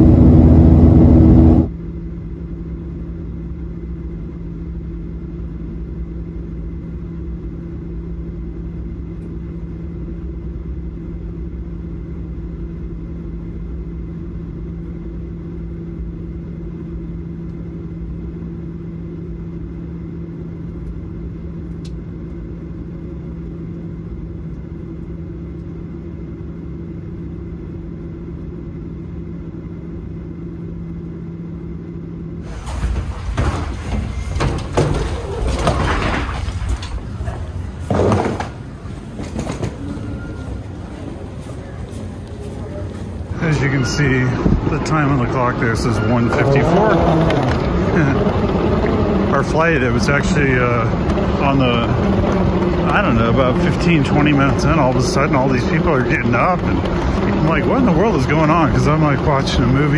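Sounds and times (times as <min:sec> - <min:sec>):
airplane cabin drone: 0:00.0 - 0:59.9
loud rush of noise: 0:32.4 - 0:59.9.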